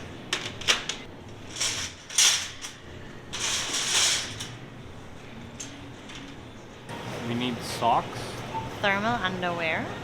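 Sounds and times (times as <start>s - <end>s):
metal shopping cart rattling: 0.7s - 4.6s.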